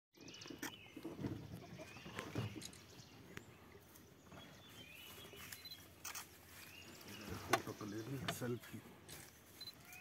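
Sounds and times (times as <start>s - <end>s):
faint bird chirps: 4.3s - 10.0s.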